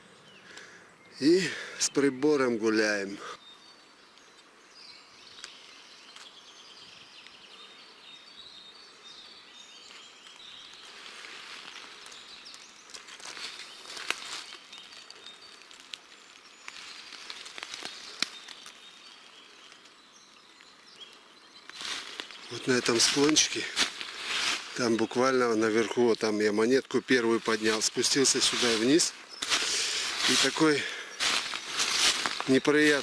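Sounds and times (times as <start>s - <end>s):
songbirds chirping: 0.0s - 33.0s
footsteps through leaves: 9.9s - 19.2s, 21.7s - 26.1s, 27.2s - 33.0s.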